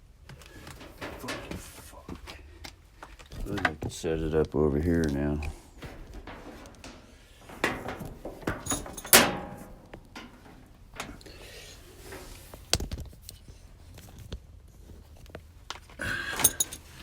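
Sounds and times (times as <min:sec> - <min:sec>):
objects knocking and rattling: 0:00.4 - 0:01.8, 0:05.0 - 0:13.3, 0:16.0 - 0:17.0.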